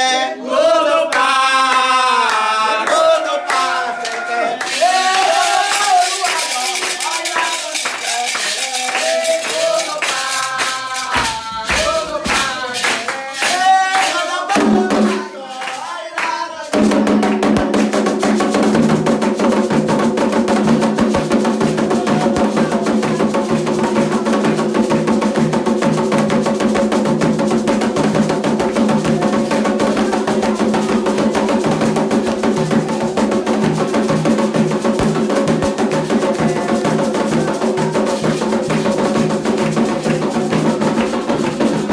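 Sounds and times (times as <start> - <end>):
people chanting: 0.0 - 41.9
clacking beat: 4.6 - 41.9
driving drumming: 16.7 - 41.9.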